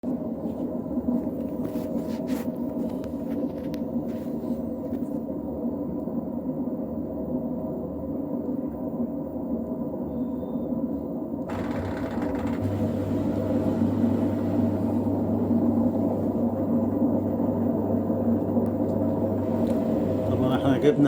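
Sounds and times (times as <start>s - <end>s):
washing machine running: 11.5s - 21.0s.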